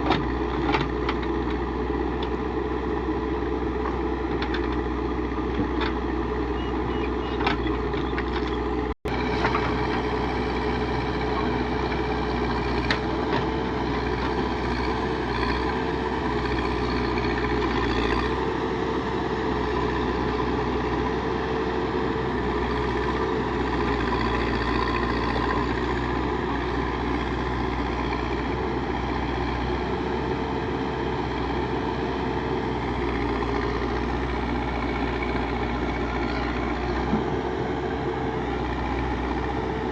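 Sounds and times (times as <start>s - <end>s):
backhoe diesel engine running: 0.0s - 39.9s.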